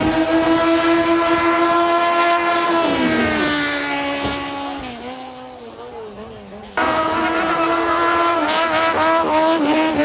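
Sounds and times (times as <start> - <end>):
racing boat engine screaming: 0.0 - 4.7.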